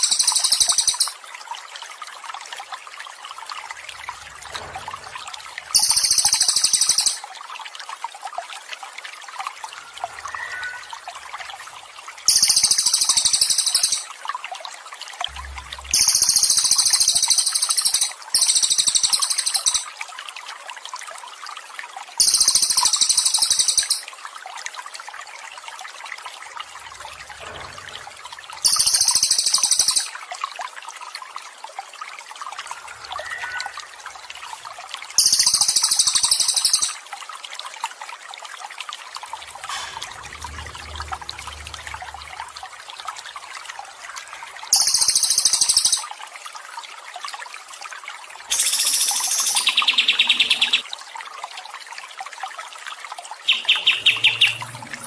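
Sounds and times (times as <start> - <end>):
high buzzy bird trill: 0.0 - 1.2, 5.8 - 7.2, 10.2 - 11.2, 12.3 - 14.1, 15.6 - 19.9, 22.2 - 24.0, 28.6 - 30.2, 32.7 - 34.4, 35.2 - 37.0, 53.5 - 55.0
water trickling: 0.0 - 55.0.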